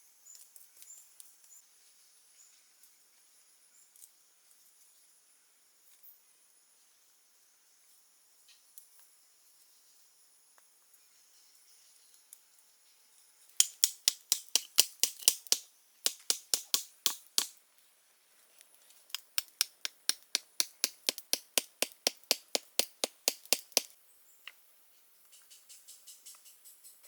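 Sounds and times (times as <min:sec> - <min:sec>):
rapid sharp taps: 0:13.6 - 0:17.5, 0:19.1 - 0:23.9.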